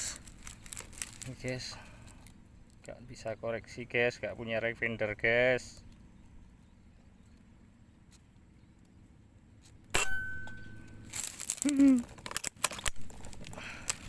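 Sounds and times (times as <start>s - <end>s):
rustling: 0.0s - 2.8s, 10.5s - 14.0s.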